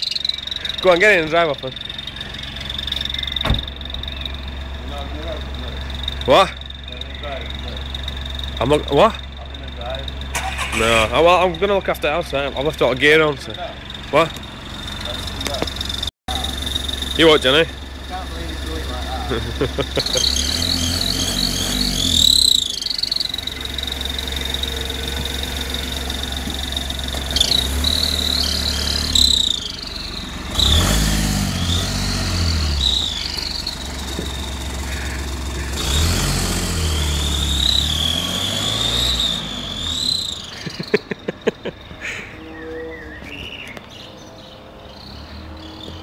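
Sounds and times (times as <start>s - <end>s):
turbocharger whistle: 0.0s - 4.4s, 19.8s - 41.1s
car engine drone: 0.0s - 46.0s.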